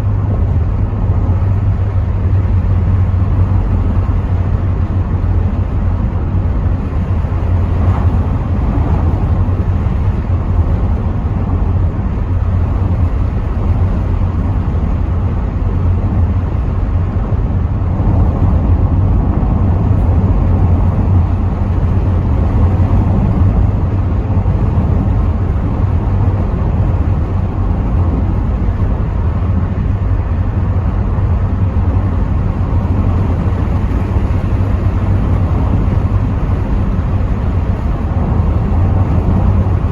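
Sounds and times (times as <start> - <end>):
car engine and road noise: 0.0 - 39.9
wind through open windows: 0.0 - 39.9.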